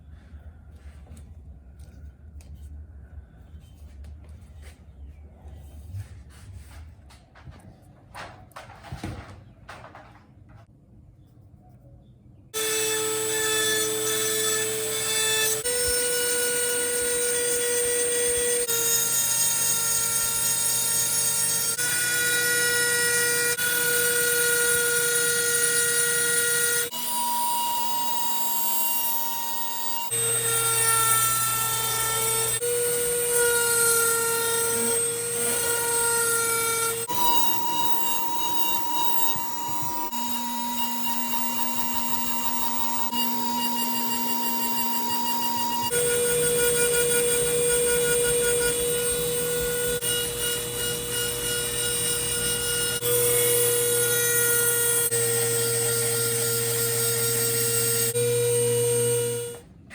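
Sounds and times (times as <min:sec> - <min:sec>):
power tool motor whining: 0:14.6 - 0:59.6.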